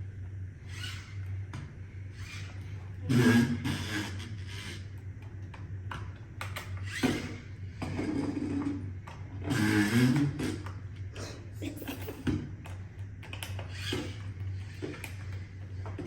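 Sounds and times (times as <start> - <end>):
gearbox whirring: 6.6 - 7.5.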